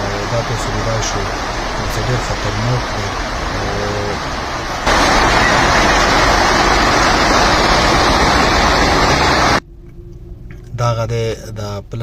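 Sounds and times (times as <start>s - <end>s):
rushing floodwater: 0.0s - 9.6s.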